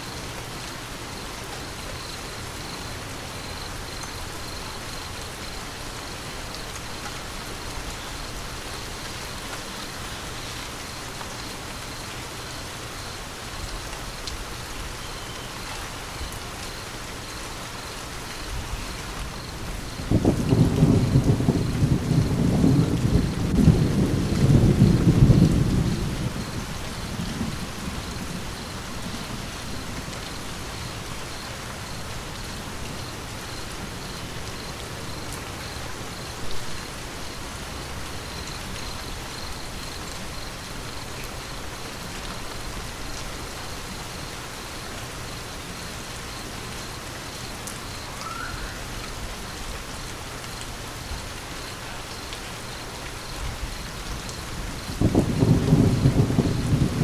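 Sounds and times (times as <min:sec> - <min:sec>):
rain pattering on surfaces: 0:00.0 - 0:57.0
low thunder rumble: 0:18.5 - 0:38.7, 0:53.4 - 0:57.0.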